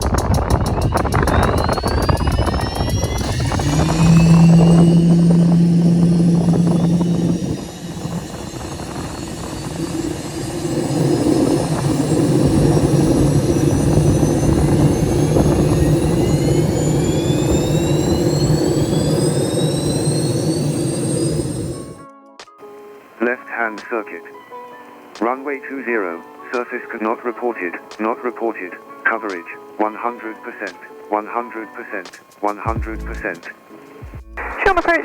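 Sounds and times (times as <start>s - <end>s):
low hum: 0.0s - 22.0s, 32.7s - 33.4s
helicopter turbine whine: 0.0s - 22.1s, 22.7s - 35.0s.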